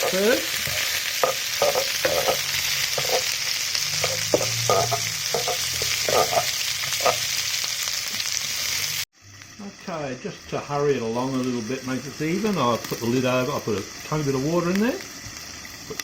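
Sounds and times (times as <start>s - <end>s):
utensil scraping a pan: 0.0s - 7.3s
vegetables sizzling in oil: 0.0s - 16.0s.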